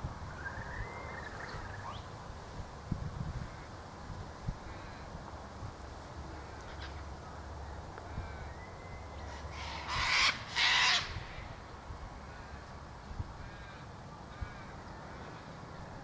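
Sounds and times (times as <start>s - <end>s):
harsh cawing bird calls: 8.0s - 11.6s, 12.2s - 15.5s.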